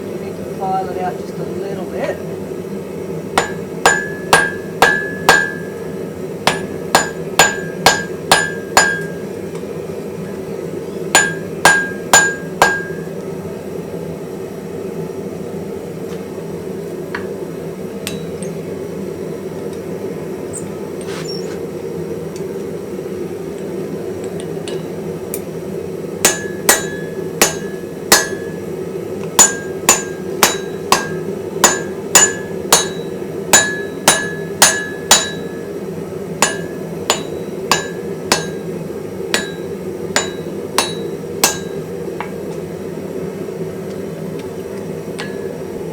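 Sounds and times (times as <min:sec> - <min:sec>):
hammer striking steel anvil: 0:03.4 - 0:05.8, 0:06.5 - 0:09.2, 0:11.1 - 0:13.1, 0:18.0 - 0:18.6, 0:24.4 - 0:25.5, 0:26.2 - 0:28.6, 0:29.4 - 0:35.7, 0:36.4 - 0:38.7, 0:39.3 - 0:42.4, 0:45.2 - 0:45.6.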